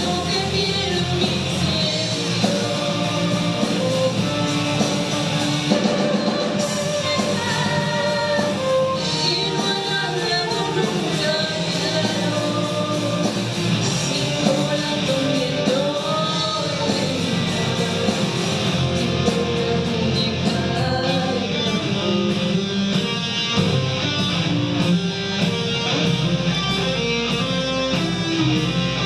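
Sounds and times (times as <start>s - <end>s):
person singing: 0.0s - 23.0s
live rock band playing: 0.0s - 29.0s.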